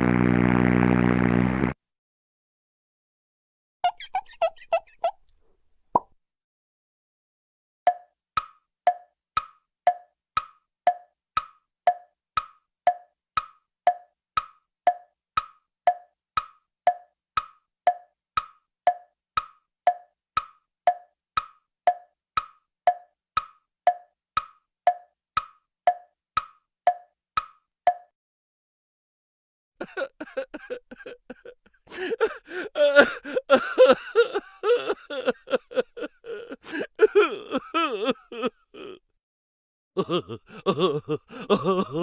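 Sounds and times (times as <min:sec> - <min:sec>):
clock tick-tock clicks: 0:07.9 - 0:28.1.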